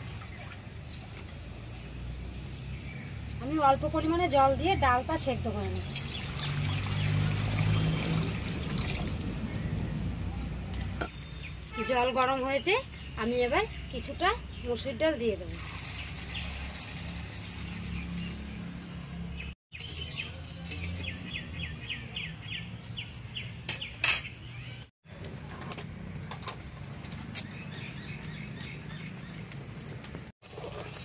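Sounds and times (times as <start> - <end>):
birds chirping: 4.4 - 24.9, 27.2 - 29.9.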